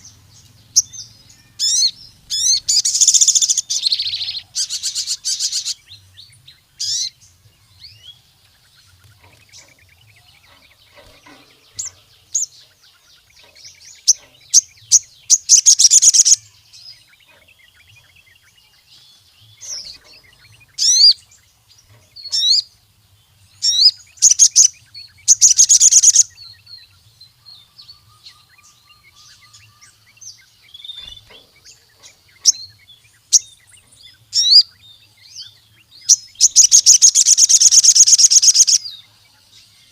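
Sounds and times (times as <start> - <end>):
sunbird trilling: 0.0 - 18.6, 19.4 - 22.9, 23.5 - 27.0, 27.6 - 39.1
bird short sharp chirps: 36.1 - 38.9.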